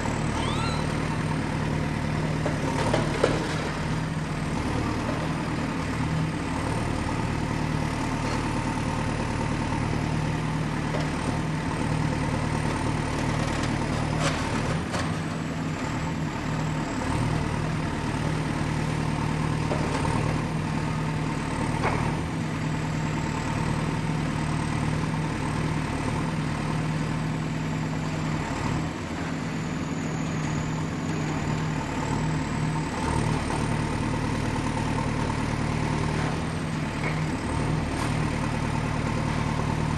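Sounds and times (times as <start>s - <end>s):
high whine: 0.0s - 1.4s
excavator diesel engine running: 0.0s - 39.9s.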